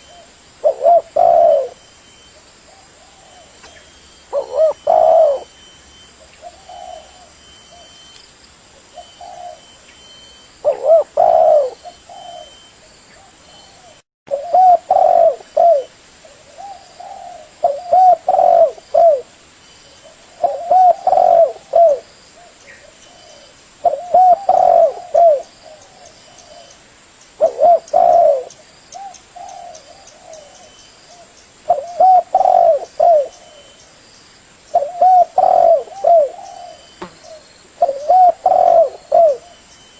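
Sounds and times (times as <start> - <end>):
dove cooing: 0.0 - 1.9, 2.7 - 5.6, 6.2 - 8.0, 8.9 - 19.3, 20.0 - 26.8, 27.4 - 33.8, 34.7 - 39.7.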